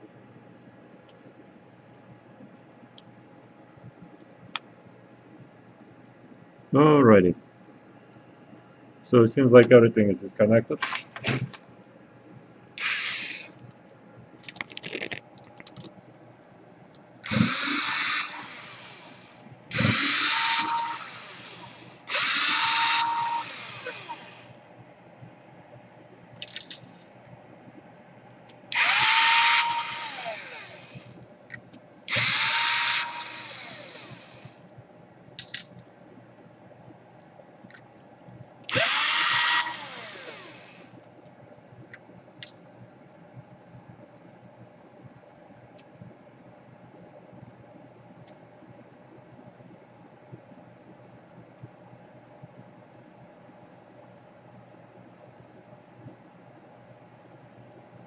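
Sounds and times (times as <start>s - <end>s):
electric screwdriver motor whining: 12.8s - 13.6s, 17.3s - 24.5s, 28.8s - 31.1s, 32.1s - 34.5s, 38.7s - 40.8s.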